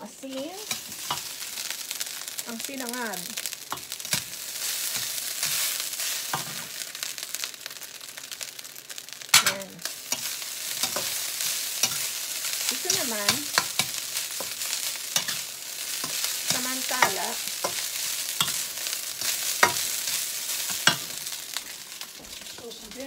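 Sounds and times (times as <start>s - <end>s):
rice sizzling in a skillet: 0.0s - 23.0s
metal spatula scraping a pan: 0.3s - 1.7s, 3.7s - 6.8s, 9.3s - 23.0s.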